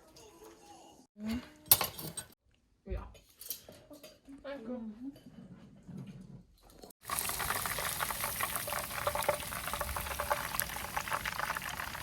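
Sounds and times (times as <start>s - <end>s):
water running: 7.0s - 12.0s.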